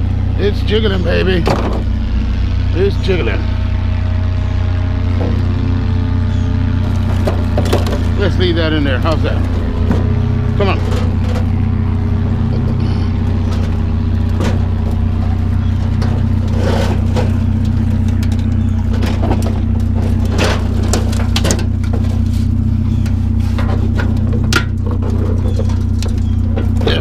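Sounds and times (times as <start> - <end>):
truck engine idling: 0.0 - 27.0
metal clanks and knocks: 1.4 - 2.0, 6.8 - 27.0.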